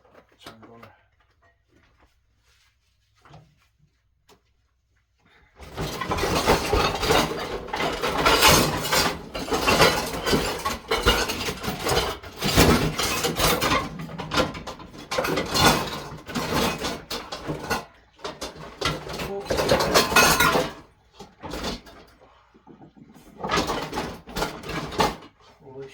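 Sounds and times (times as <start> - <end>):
dishes clattering in sink: 5.6 - 25.4.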